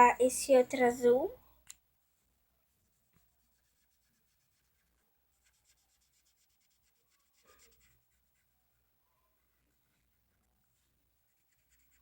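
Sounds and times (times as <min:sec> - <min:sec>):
felt-tip pen scratching on paper: 0:02.8 - 0:08.5, 0:09.4 - 0:12.0.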